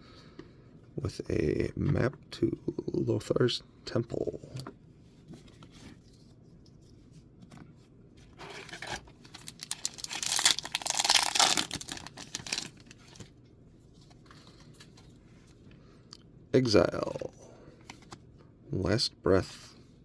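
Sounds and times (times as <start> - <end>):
foil wrapper tearing and crinkling: 8.7 - 13.2.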